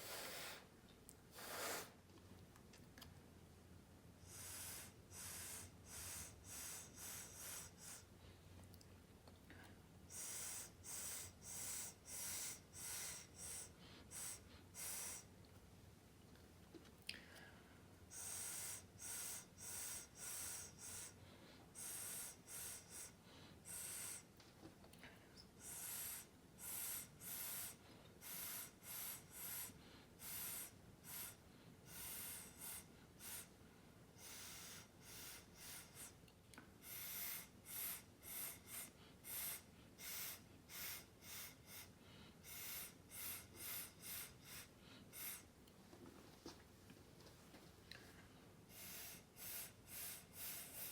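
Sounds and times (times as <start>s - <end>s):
puffs of breath through lips: 0.0s - 0.7s, 1.3s - 2.0s, 4.2s - 8.2s, 10.1s - 15.3s, 18.1s - 24.4s, 25.4s - 33.6s, 34.2s - 36.2s, 36.8s - 45.6s, 48.0s - 50.9s.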